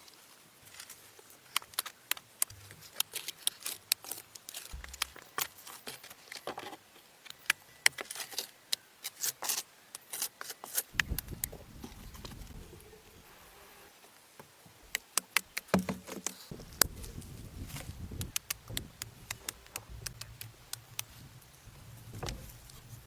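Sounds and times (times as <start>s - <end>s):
sharp clicks and snaps: 1.5s - 5.8s, 14.8s - 21.7s.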